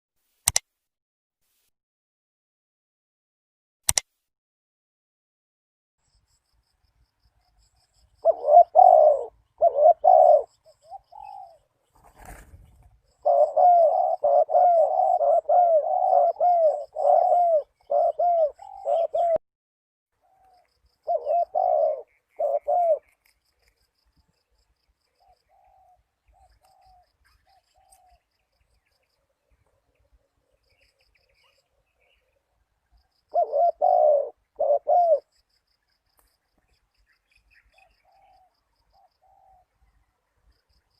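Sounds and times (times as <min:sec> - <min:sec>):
sharp click: 0:00.4 - 0:00.7, 0:03.9 - 0:04.1
dove cooing: 0:08.2 - 0:19.4, 0:20.2 - 0:23.2, 0:25.2 - 0:28.3, 0:29.7 - 0:35.3, 0:37.7 - 0:39.8.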